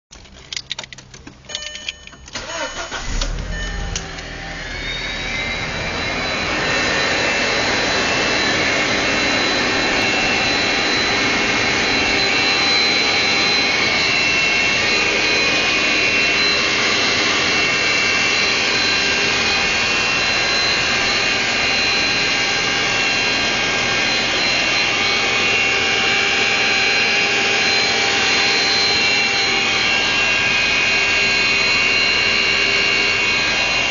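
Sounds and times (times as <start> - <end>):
engine cranking and starting: 0.1 - 5.4
loud whirring under hood: 0.2 - 33.9
high whistling tones: 1.5 - 33.9.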